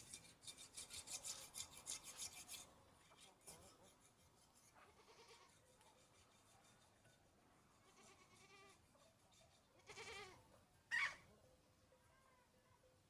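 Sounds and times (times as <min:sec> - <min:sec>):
faint animal call: 0:04.9 - 0:05.6, 0:07.8 - 0:08.8, 0:09.8 - 0:11.4.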